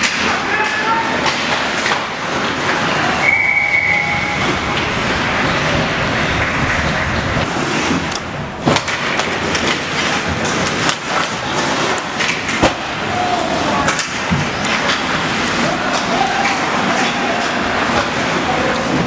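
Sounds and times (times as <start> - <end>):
skates scraping on ice: 4.1 - 19.0.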